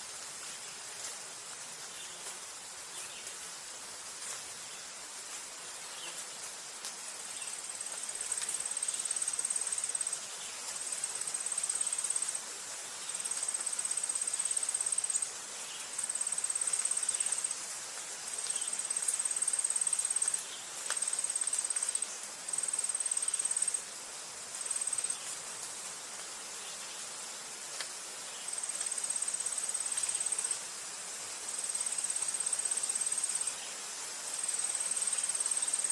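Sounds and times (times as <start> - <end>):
steady background hiss: 0.0 - 35.9
insect trilling: 18.6 - 20.4, 21.0 - 23.8.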